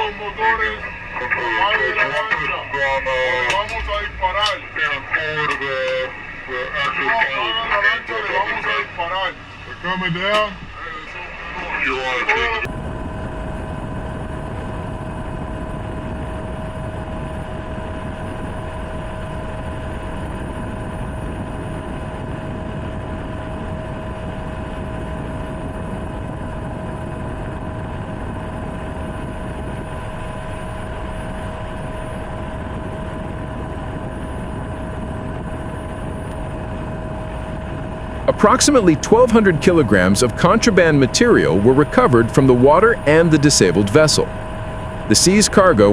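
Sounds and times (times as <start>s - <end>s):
helicopter engine and rotor: 0.0s - 45.9s.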